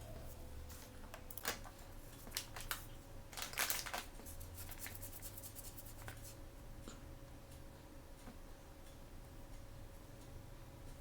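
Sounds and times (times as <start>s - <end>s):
plastic packaging crinkling: 1.2s - 5.0s.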